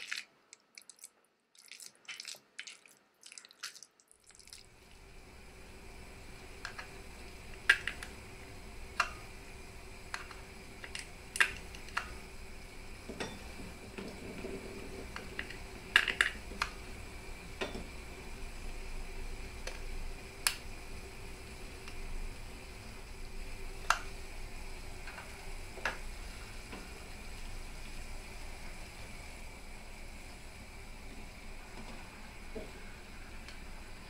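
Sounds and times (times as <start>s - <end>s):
faint steady hum: 0.0s - 34.0s
kitchen items clicking and tapping: 15.1s - 16.7s.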